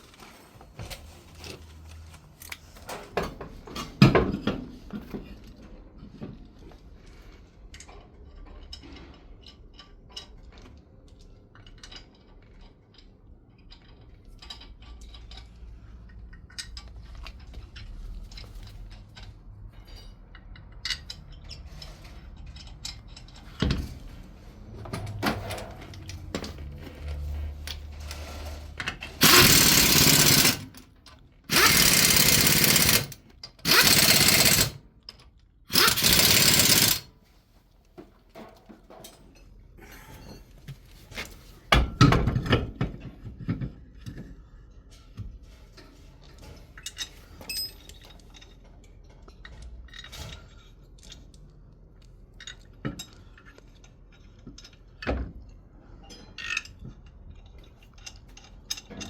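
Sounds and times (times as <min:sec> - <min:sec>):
power tool bursts: 0:29.2 - 0:30.8, 0:31.5 - 0:34.8, 0:35.7 - 0:37.1.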